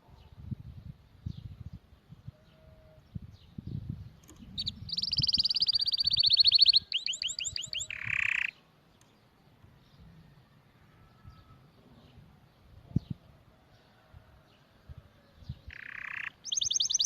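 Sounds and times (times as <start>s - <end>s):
canary singing: 4.5s - 8.6s, 15.6s - 17.0s.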